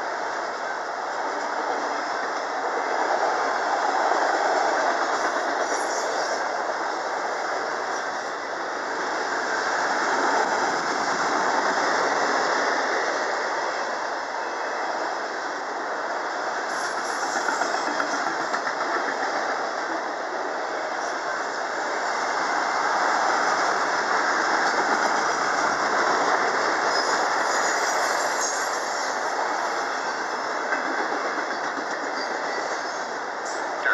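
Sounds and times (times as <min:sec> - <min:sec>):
freight train wheels rushing on rail: 0:00.0 - 0:33.9.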